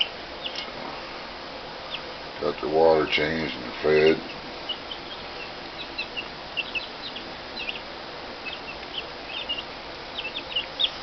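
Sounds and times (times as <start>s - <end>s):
baby chicks peeping: 0.0s - 11.0s
steady background hiss: 0.0s - 11.0s.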